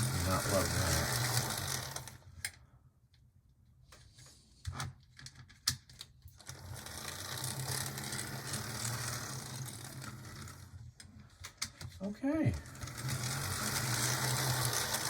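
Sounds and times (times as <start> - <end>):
model train motor growling: 0.0 - 2.3, 6.5 - 10.7, 12.4 - 15.0.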